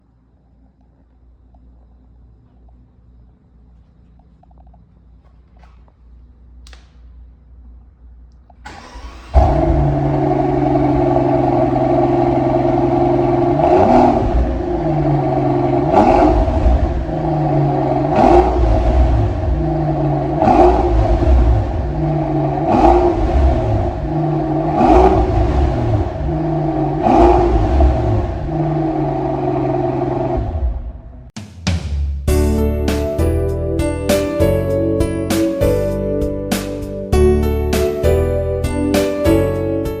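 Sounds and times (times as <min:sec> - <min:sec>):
car engine idling: 0:07.5 - 0:31.4
car engine starting: 0:08.4 - 0:31.4
engine revving: 0:08.7 - 0:31.4.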